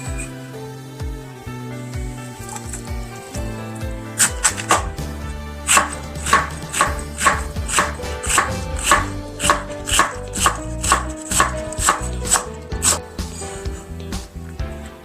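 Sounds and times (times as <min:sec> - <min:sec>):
piano music: 0:00.0 - 0:15.0
knife chopping on cutting board: 0:04.2 - 0:05.0, 0:05.7 - 0:13.0.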